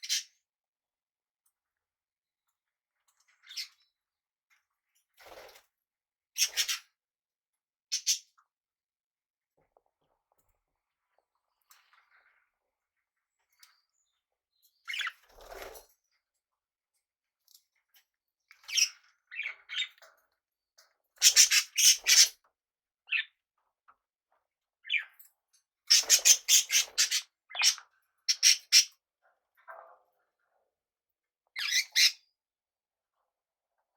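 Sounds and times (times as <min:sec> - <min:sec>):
parrots chirping and calling: 0:21.2 - 0:22.3, 0:25.9 - 0:29.0, 0:31.6 - 0:32.2.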